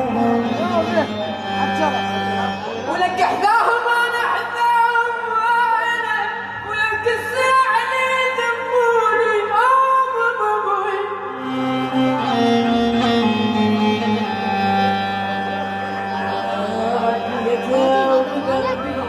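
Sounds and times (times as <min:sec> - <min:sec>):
sustained instrumental accompaniment: 0:00.0 - 0:09.3, 0:11.1 - 0:19.0
person singing ornamented notes: 0:16.0 - 0:19.0.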